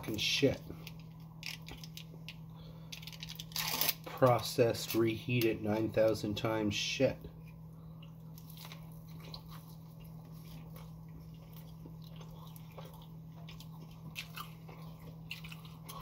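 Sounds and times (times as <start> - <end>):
low hum: 0.0 - 16.0
chewing a burger: 7.3 - 16.0.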